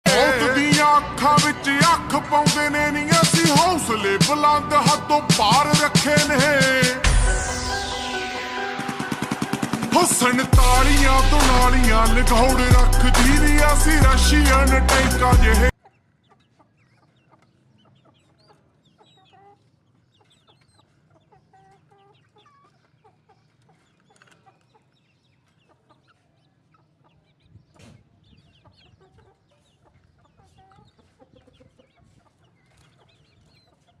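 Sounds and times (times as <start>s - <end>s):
chickens clucking: 15.7s - 34.0s.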